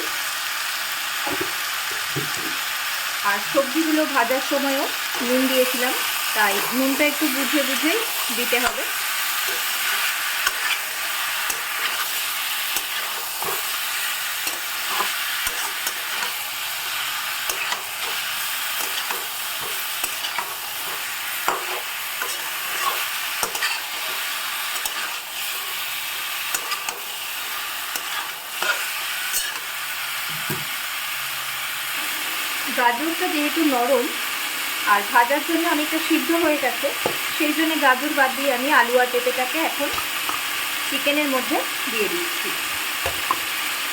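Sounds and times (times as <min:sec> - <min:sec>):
chicken sizzling in oil: 0:00.0 - 0:43.9
utensil scraping and clicking on pan: 0:18.8 - 0:24.2.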